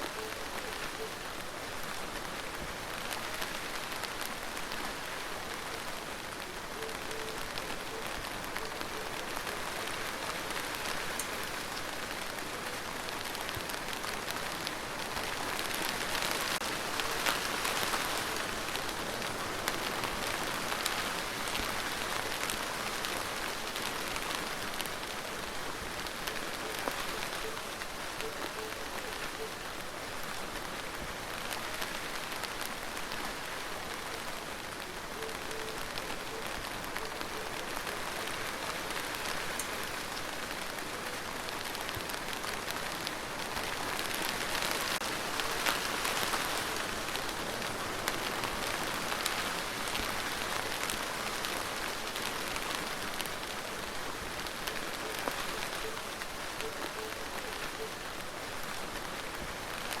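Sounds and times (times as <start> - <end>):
rain falling: 0.0 - 60.0.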